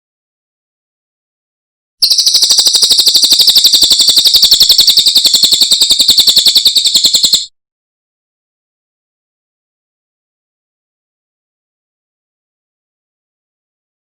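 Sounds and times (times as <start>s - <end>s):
songbird rapid trill: 2.0s - 7.5s.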